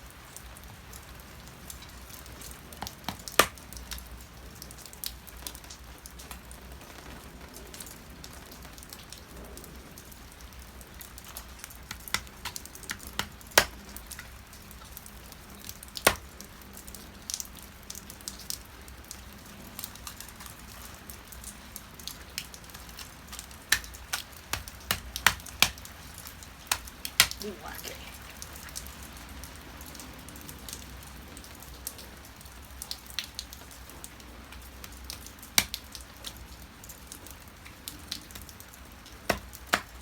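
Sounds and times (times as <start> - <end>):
rain falling: 0.0 - 40.0
drops tapping on hard surface: 11.9 - 13.8.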